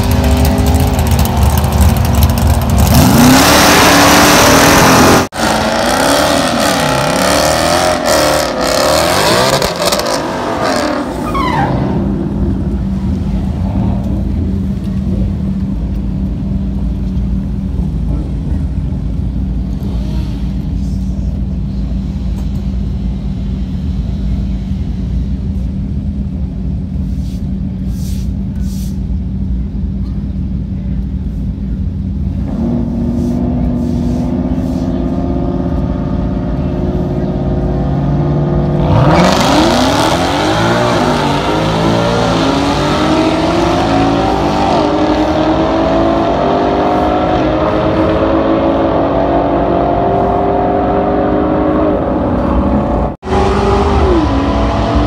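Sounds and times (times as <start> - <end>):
engine revving: 0.0 - 12.4, 35.1 - 55.0
engines idling: 0.0 - 48.1.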